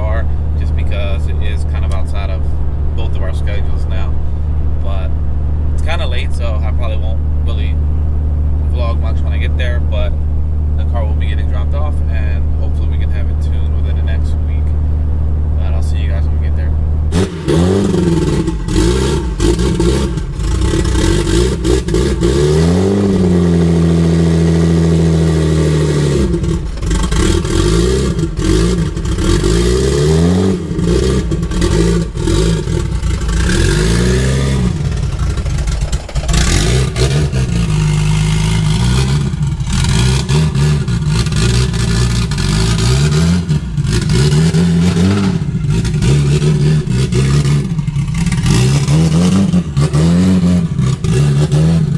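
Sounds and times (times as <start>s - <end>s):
vehicle engine revving: 0.0s - 51.9s.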